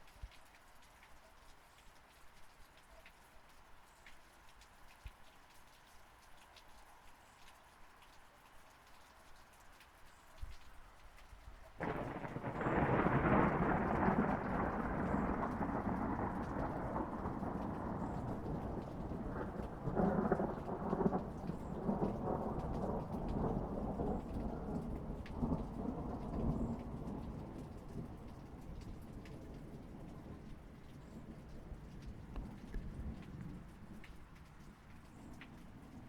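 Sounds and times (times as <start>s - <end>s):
steady rain: 0.0s - 36.0s
thunder cracking and rumbling: 11.8s - 34.1s.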